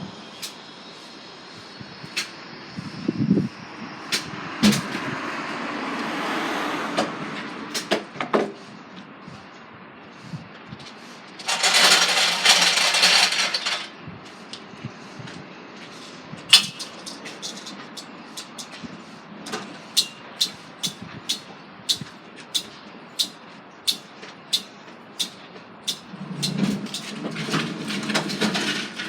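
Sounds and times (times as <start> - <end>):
loud air hiss: 0.0 - 5.2
knocks and clanks: 11.4 - 13.9.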